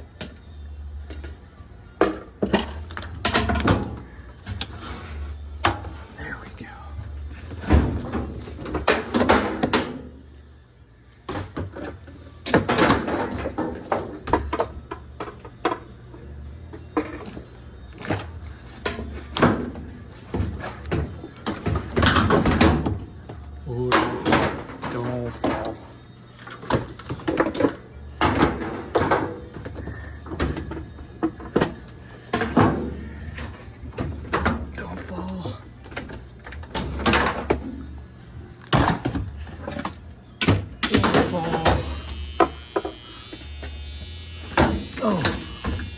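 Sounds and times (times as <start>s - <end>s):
knocks and clunks of parts handled: 2.0s - 5.0s.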